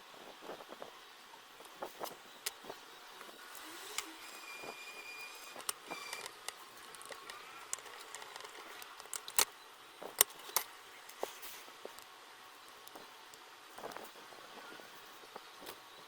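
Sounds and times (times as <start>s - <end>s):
clicks of small hard objects: 5.5s - 12.1s.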